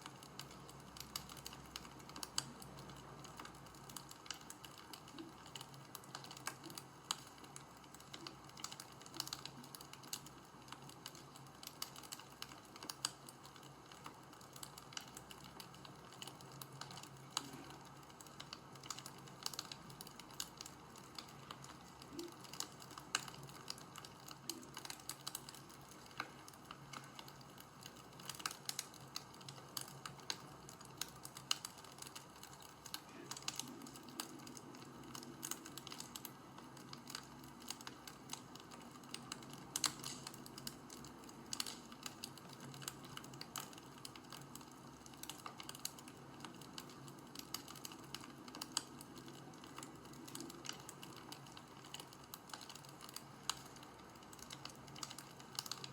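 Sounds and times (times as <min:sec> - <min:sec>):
faint steady hiss: 0:00.0 - 0:55.9
wood fire crackling: 0:00.0 - 0:55.9.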